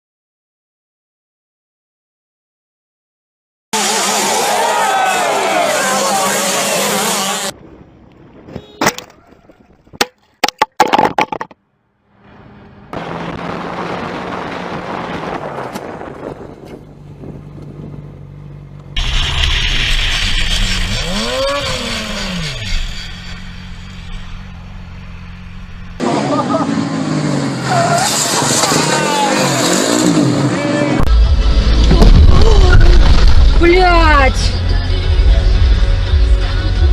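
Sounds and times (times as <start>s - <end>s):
engine note rising and falling: 3.8s - 7.6s, 12.1s - 36.9s
vehicle engine and road noise: 3.8s - 36.9s.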